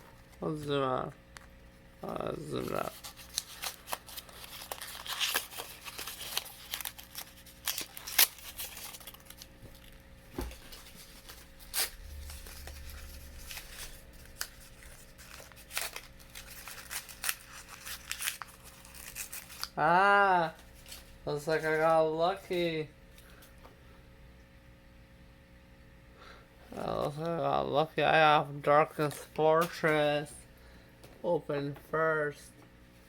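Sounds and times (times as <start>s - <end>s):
plastic and cardboard packaging rustling: 2.0s - 19.8s.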